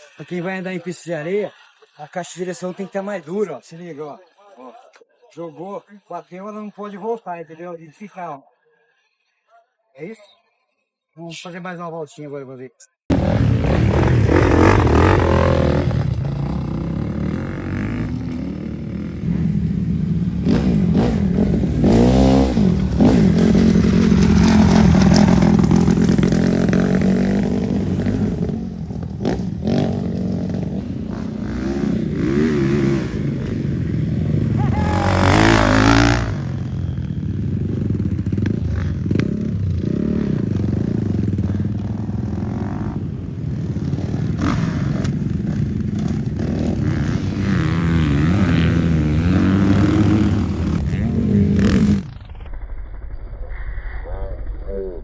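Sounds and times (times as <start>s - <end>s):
dirt bike engine revving: 13.1s - 52.2s.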